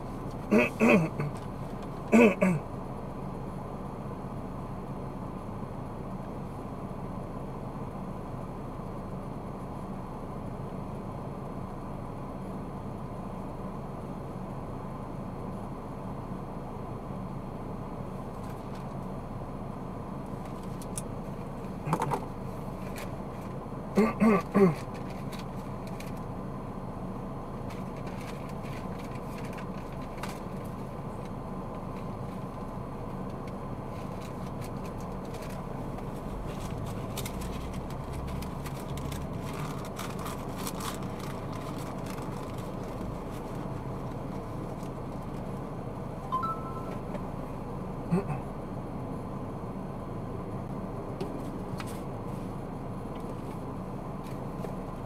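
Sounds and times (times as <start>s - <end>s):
car road and engine noise: 0.0s - 55.0s
short pitched beeps: 46.3s - 47.1s.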